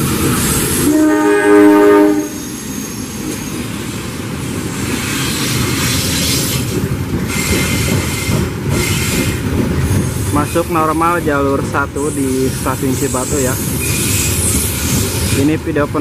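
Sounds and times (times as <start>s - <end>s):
train wheels rumbling on rails: 0.0s - 16.0s
locomotive horn: 0.8s - 2.4s
wheel squeal: 2.4s - 3.6s, 13.0s - 15.4s.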